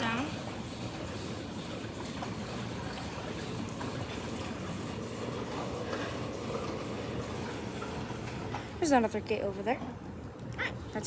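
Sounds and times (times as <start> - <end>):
garage door opener rumbling: 0.4 - 8.9.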